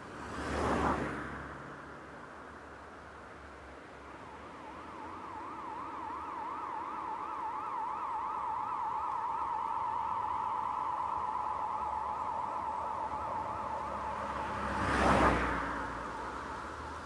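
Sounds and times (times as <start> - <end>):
warbling electronic siren tone: 4.1 - 16.9.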